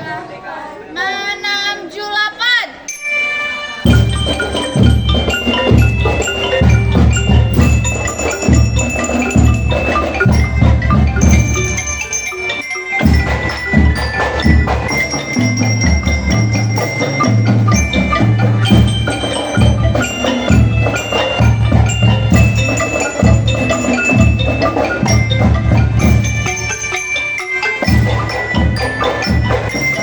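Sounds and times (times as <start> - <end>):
metal mallet instrument melody: 2.9 - 30.0
low drum beat: 3.9 - 12.2.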